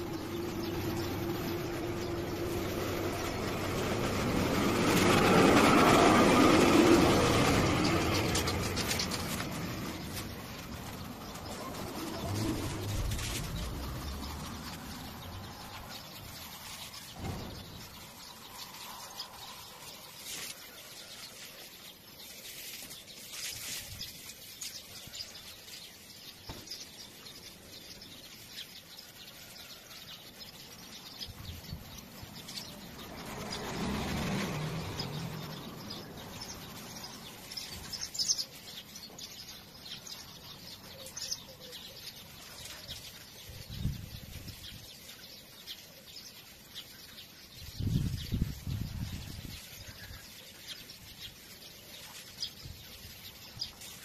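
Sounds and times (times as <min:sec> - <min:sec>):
broad rushing swell: 0:00.0 - 0:16.5
small birds chirping: 0:00.0 - 0:54.0.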